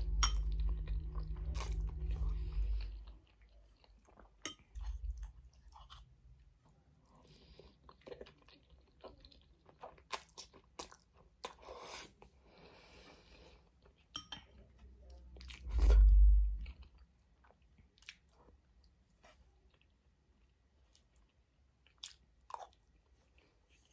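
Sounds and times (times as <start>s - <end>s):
wet chewing and smacking: 7.6s - 11.9s, 16.6s - 19.0s, 19.7s - 23.9s.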